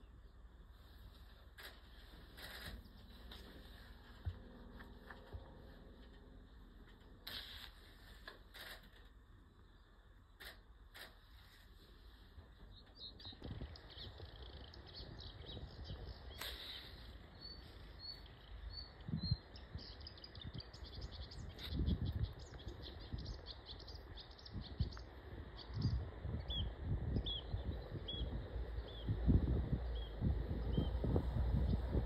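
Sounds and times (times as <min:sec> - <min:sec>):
songbird chirping: 0:00.0 - 0:07.2, 0:09.4 - 0:10.7, 0:12.0 - 0:32.0
low gusty rumble: 0:12.2 - 0:32.0.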